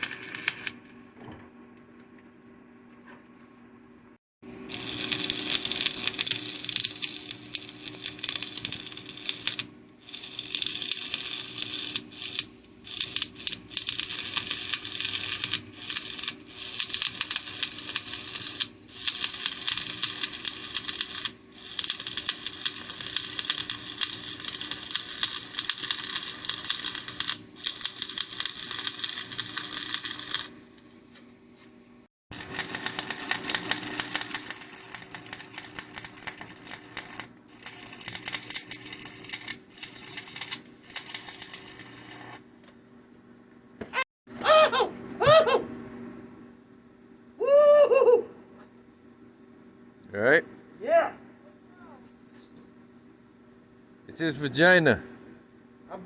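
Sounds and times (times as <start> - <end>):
welding arc crackling: 0.0 - 0.9, 4.6 - 30.6, 32.3 - 42.4.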